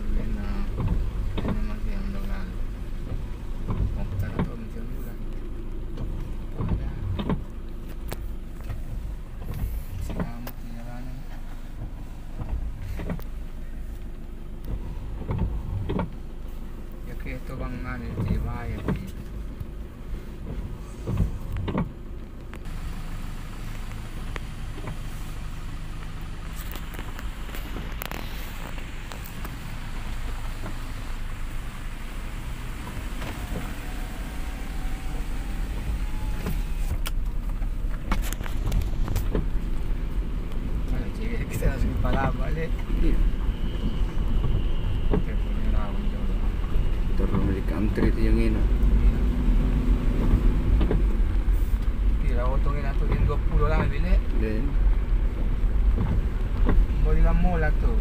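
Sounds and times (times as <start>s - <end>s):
vehicle engine and road noise: 0.0s - 58.0s
sharp clicks and knocks: 3.0s - 10.6s, 11.8s - 13.4s, 14.0s - 16.2s, 20.4s - 22.7s, 35.8s - 39.9s, 41.5s - 43.2s, 50.1s - 52.2s, 55.4s - 56.9s.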